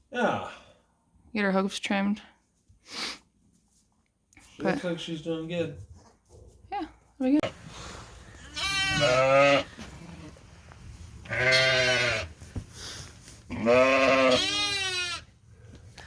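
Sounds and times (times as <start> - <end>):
sheep bleating: 8.4 - 10.4, 11.2 - 12.4, 13.5 - 15.3.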